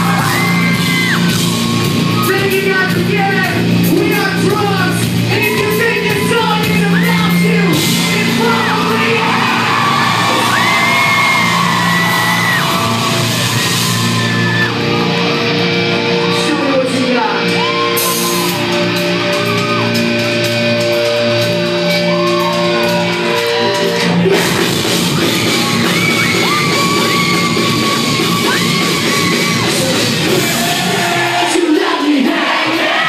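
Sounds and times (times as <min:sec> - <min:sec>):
rock band playing: 0:00.0 - 0:33.0
sung and shouted vocals: 0:28.4 - 0:33.0.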